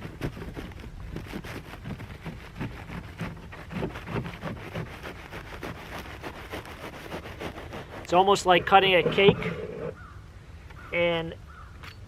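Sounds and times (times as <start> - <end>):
knife crunching paper wasp nest: 0.0 - 9.6.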